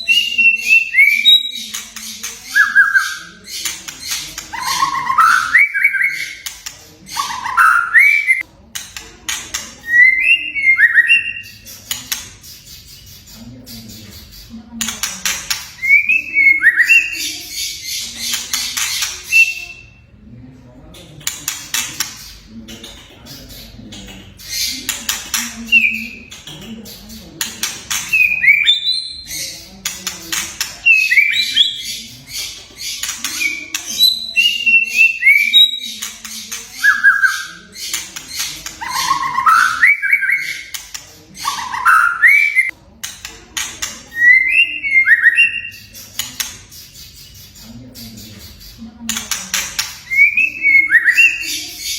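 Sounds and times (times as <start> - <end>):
bird whistling song: 0.0 - 6.6, 7.2 - 8.4, 9.8 - 11.7, 15.8 - 18.0, 18.8 - 19.9, 30.9 - 32.0, 32.8 - 42.7, 44.1 - 45.9, 50.0 - 51.6
bird rattling chatter: 17.5 - 19.5.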